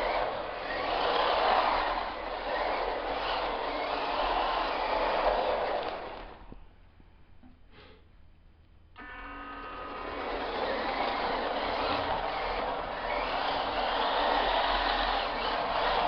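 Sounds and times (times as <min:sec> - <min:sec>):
small electric motor whining: 0:00.0 - 0:06.4, 0:09.0 - 0:16.0
tyres rolling on hard floor: 0:00.0 - 0:06.5, 0:09.9 - 0:16.0.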